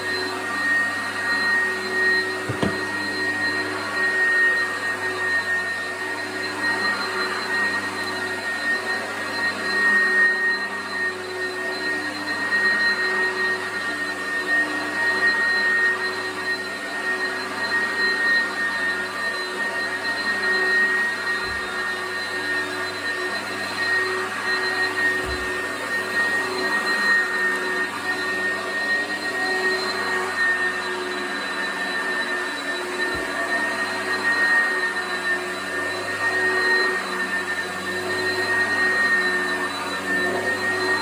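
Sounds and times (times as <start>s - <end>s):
vacuum cleaner running on carpet: 0.0s - 41.0s.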